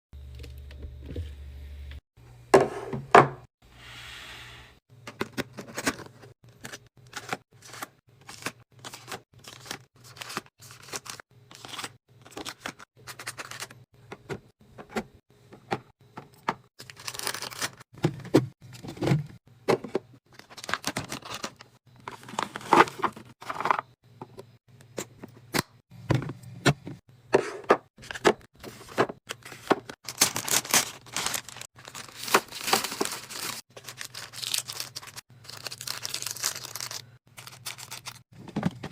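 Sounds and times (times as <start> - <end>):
plastic crinkling and tearing: 29.4 - 38.2.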